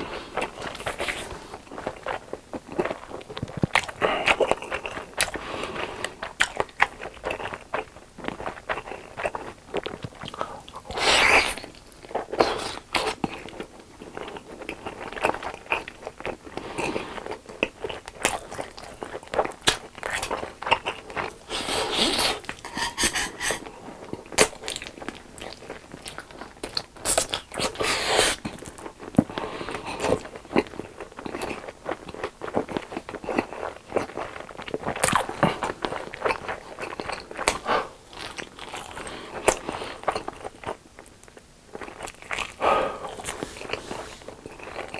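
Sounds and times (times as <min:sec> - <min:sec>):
crunching fried chicken: 0:00.1 - 0:23.0, 0:23.6 - 0:44.9
chewing mouth sounds: 0:23.6 - 0:44.9.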